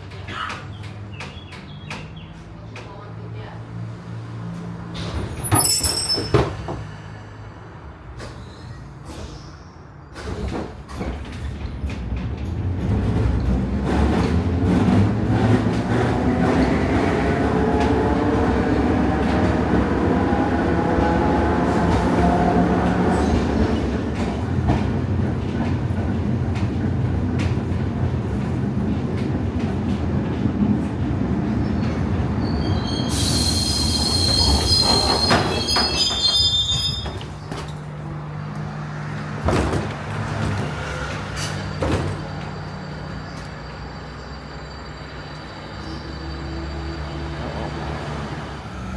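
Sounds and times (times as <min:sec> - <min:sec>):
tram rumbling on rails: 0:00.0 - 0:48.9
wheels squealing: 0:05.0 - 0:07.0, 0:31.5 - 0:38.6, 0:40.7 - 0:48.9.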